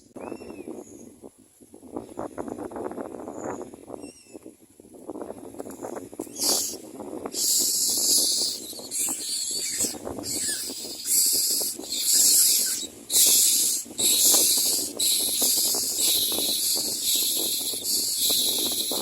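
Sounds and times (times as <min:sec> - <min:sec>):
nestling begging calls: 0:06.3 - 0:19.0.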